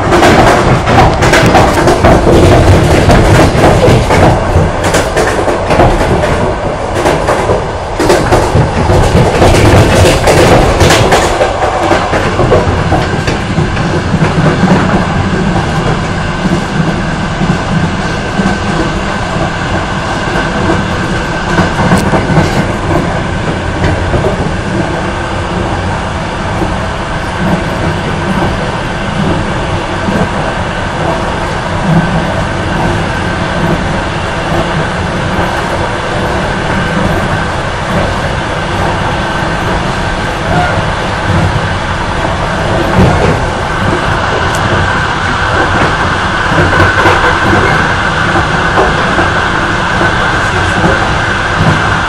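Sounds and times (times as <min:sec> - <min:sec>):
train wheels rumbling on rails: 0:00.0 - 0:52.0
sharp clicks and knocks: 0:00.1 - 0:19.5, 0:21.5 - 0:23.1.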